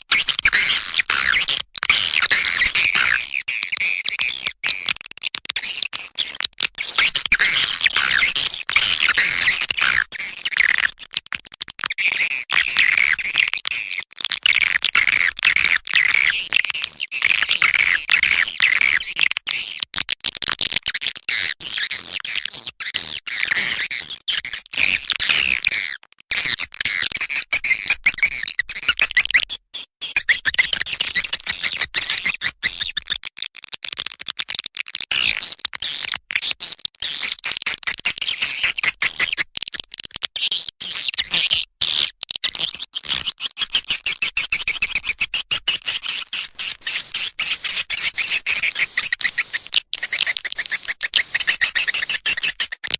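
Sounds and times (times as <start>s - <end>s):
swiftlet chirps and twitters: 45.7s - 52.6s.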